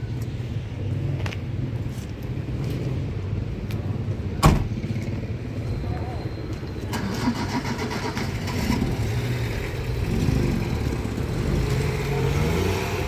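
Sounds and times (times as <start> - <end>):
low traffic rumble: 0.0 - 13.0
vehicle engine passing: 7.0 - 13.0.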